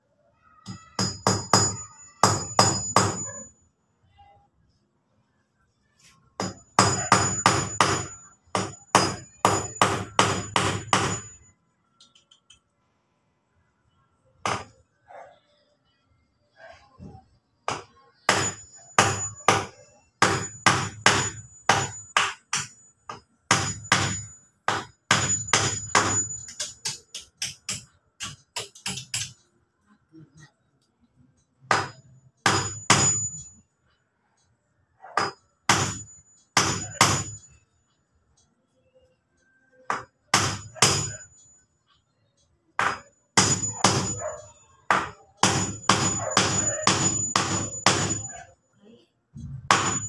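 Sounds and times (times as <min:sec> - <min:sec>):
hammer driving nails into wood: 0:06.4 - 0:11.3, 0:17.7 - 0:29.4, 0:39.9 - 0:41.2, 0:49.7 - 0:50.0.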